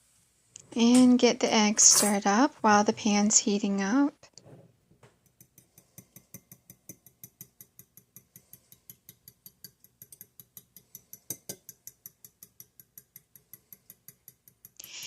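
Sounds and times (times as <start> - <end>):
eggs beaten in a bowl: 5.2 - 15.0.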